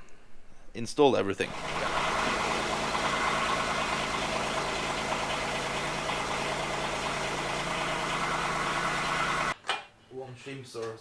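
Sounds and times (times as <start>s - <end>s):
diesel engine idling: 1.5s - 9.6s.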